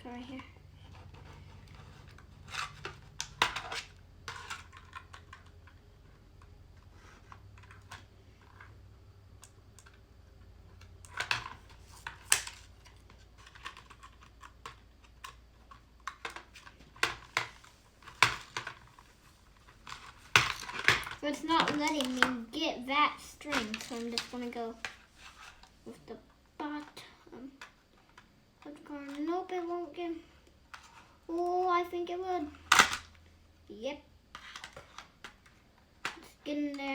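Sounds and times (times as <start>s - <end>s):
toy packaging being handled and cut: 0.0s - 8.8s, 10.8s - 27.7s, 30.7s - 33.1s, 34.3s - 35.4s.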